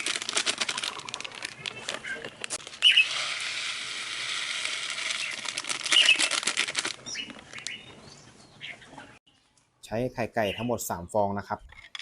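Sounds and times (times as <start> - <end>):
bird food pouring into container: 0.0 - 2.2, 4.6 - 7.3.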